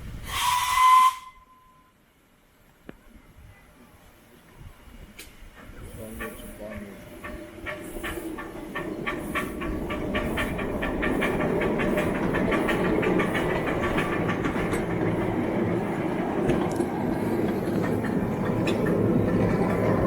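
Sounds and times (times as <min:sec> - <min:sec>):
model train wheels clicking: 0:05.2 - 0:20.0.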